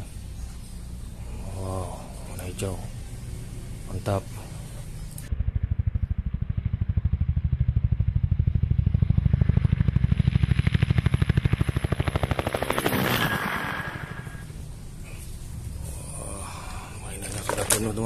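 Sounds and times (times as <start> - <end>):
helicopter rotor chopping: 0.0 - 18.0
rushing noise with high whine: 8.2 - 16.1.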